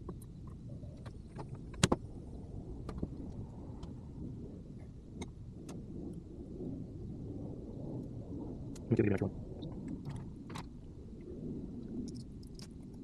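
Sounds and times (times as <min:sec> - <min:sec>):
small parts clicking and tapping: 0:12.0 - 0:13.0.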